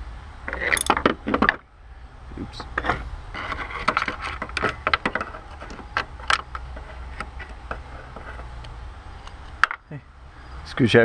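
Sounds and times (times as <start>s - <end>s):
low steady hum: 0.0s - 10.6s
hand tools clinking: 0.5s - 1.1s.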